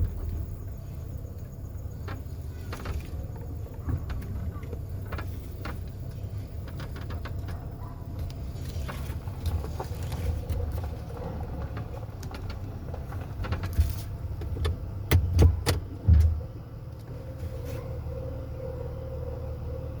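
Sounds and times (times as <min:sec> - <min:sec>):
truck engine rumbling: 0:00.0 - 0:20.0
rattles and clicks: 0:01.4 - 0:16.5.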